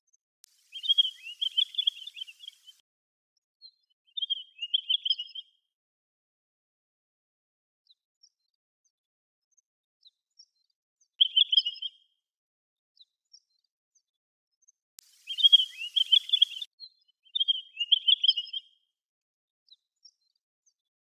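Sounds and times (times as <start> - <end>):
bird warbled whistled phrases: 0.6 - 2.8, 15.1 - 16.7
faint single bird notes: 0.6 - 2.8, 15.0 - 16.7.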